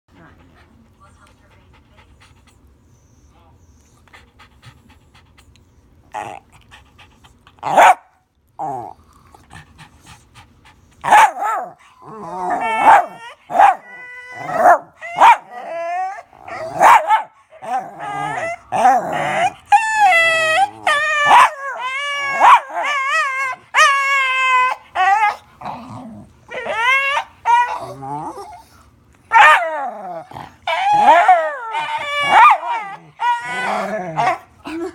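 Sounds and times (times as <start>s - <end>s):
dog panting: 0.1s - 7.7s, 9.1s - 11.1s
dog groaning whine: 12.0s - 16.8s, 17.6s - 34.9s.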